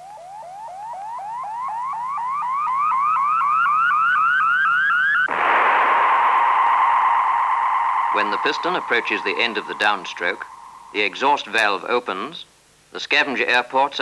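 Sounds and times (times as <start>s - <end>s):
electronic rising chirps: 0.0s - 11.6s
loud steady hiss: 5.3s - 14.0s.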